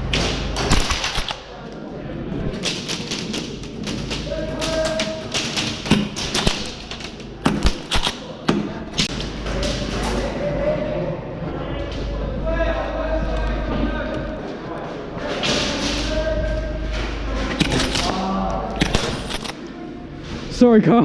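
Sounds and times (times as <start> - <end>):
airsoft gunshots: 5.9 - 8.2.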